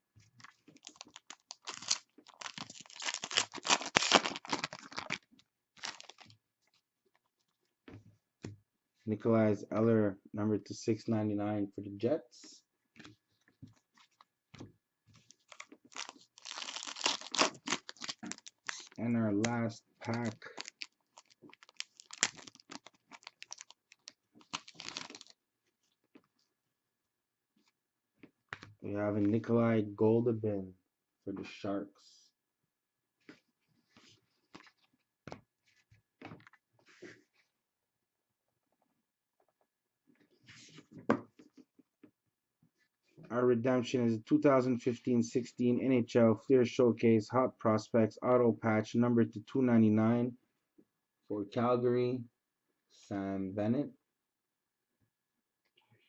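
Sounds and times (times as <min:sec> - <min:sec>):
plastic packaging crinkling: 0:00.4 - 0:06.3, 0:15.2 - 0:19.0, 0:20.0 - 0:25.4.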